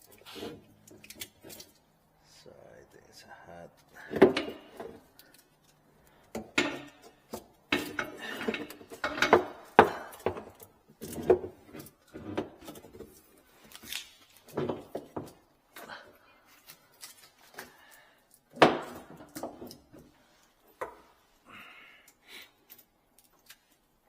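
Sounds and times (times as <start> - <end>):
hard objects knocking: 6.3 - 11.6.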